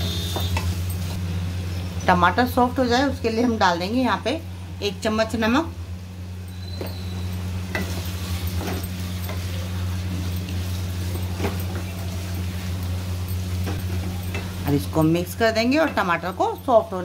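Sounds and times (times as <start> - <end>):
steady low hum: 0.0 - 17.0
vegetables sizzling in a pan: 7.0 - 16.8.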